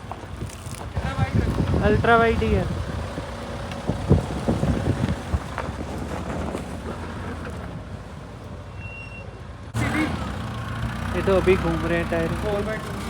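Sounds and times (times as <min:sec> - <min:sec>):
wind buffeting microphone: 0:00.0 - 0:07.1
vehicle engine running: 0:00.0 - 0:08.5, 0:09.5 - 0:13.0.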